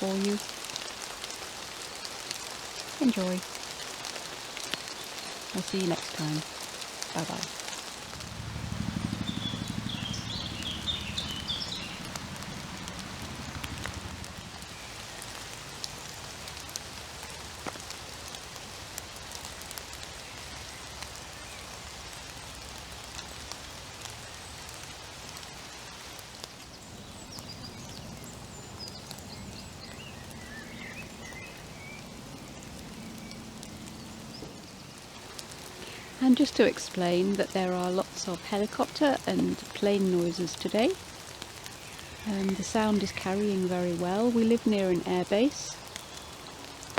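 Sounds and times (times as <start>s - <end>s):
drips ticking on leaves: 0.0s - 46.9s
steady rain falling: 0.0s - 46.9s
distant aircraft drone: 2.8s - 18.8s, 19.4s - 46.9s
bird chirps: 9.2s - 12.0s.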